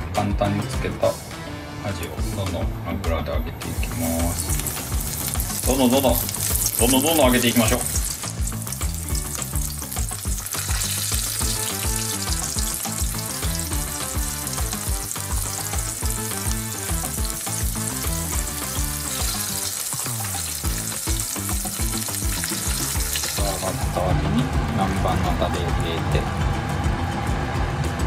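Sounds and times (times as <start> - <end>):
background music with bass line: 0.0 - 28.0
fish deep-frying in oil: 3.7 - 24.1.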